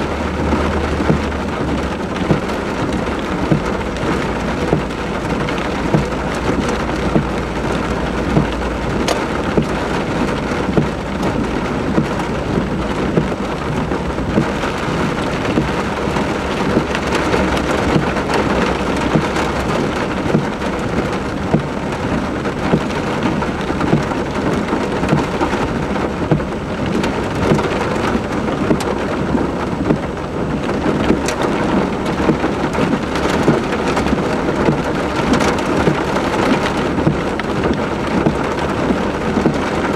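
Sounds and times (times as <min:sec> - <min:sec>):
heavy rain pouring: 0:00.0 - 0:39.9
raindrops striking close by: 0:00.0 - 0:39.9.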